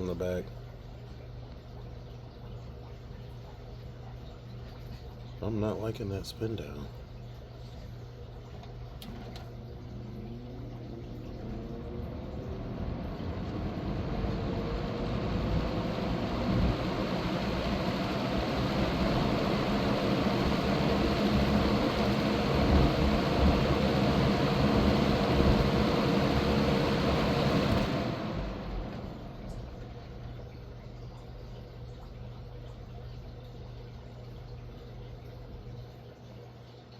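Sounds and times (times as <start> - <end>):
fan motor hum and blade rush: 9.8 - 30.2.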